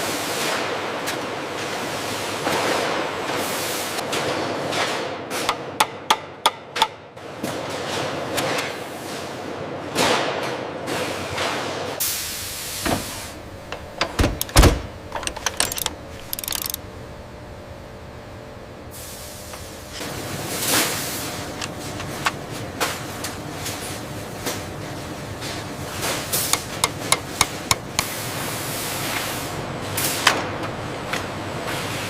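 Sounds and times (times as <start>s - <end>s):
clicks: 13.7s - 16.8s.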